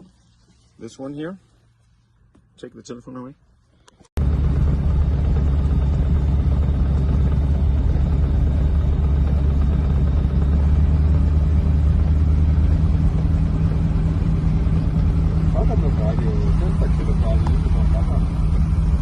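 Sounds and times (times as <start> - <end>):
motorglider engine droning: 4.2 - 19.0.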